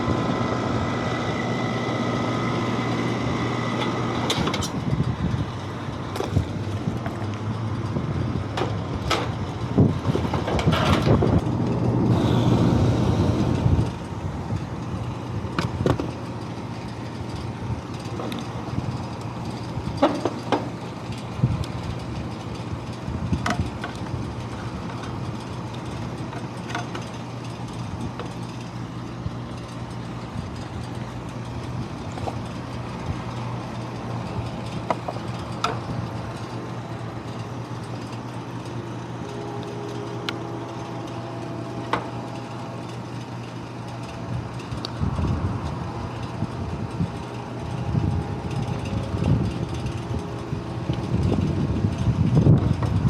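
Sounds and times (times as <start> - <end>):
vehicle engine humming: 0.0 - 53.0
small clicks and knocks: 23.4 - 24.2.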